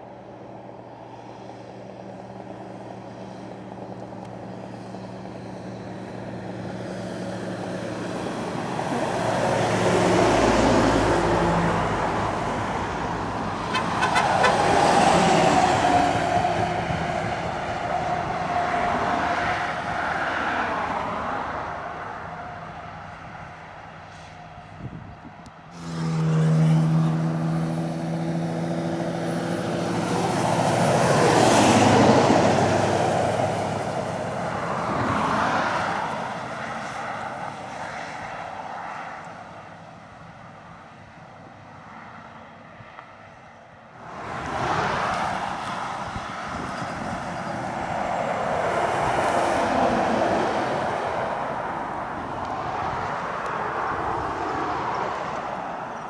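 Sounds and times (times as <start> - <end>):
lorry diesel engines straining: 0.0 - 20.4.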